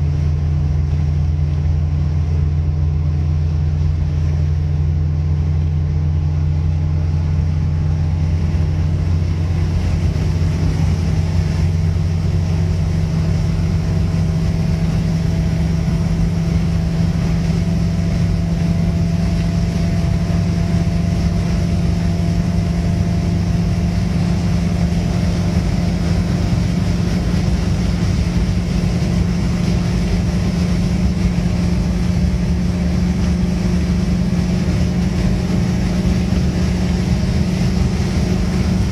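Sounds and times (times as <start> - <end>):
car engine droning: 0.0 - 38.9
road noise: 0.0 - 38.9.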